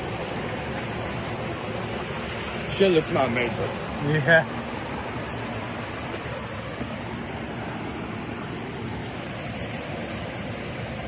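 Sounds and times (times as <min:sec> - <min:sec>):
river water rushing over waterfall: 0:00.0 - 0:11.0.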